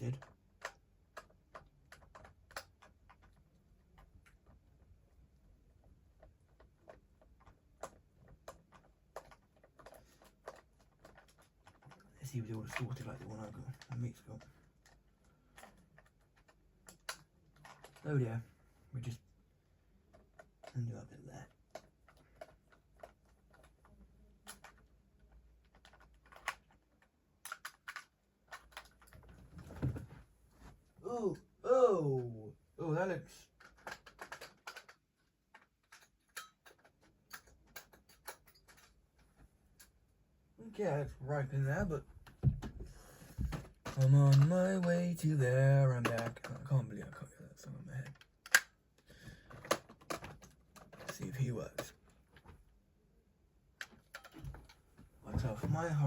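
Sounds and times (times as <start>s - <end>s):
plastic toys clicking: 0.0s - 4.9s, 5.8s - 18.1s, 20.0s - 29.2s, 33.4s - 39.0s, 43.4s - 47.0s, 48.0s - 52.1s.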